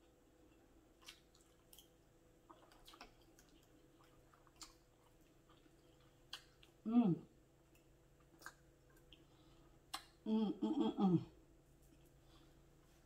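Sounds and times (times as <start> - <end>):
faint chewing: 0.0 - 6.8, 7.6 - 10.2.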